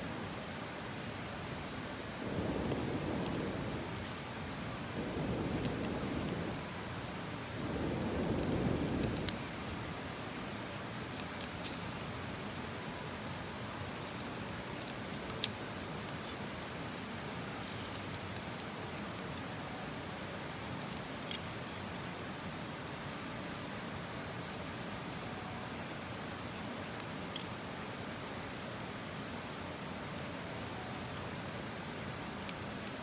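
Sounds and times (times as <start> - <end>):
campfire crackling: 0.0 - 22.2, 23.4 - 33.0
steady hiss: 0.0 - 33.0
soft rushing swells: 1.9 - 11.0.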